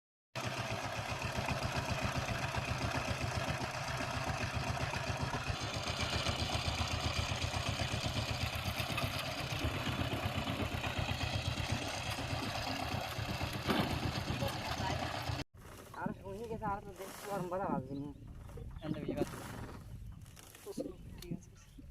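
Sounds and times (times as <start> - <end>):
diesel engine running: 0.4 - 15.4.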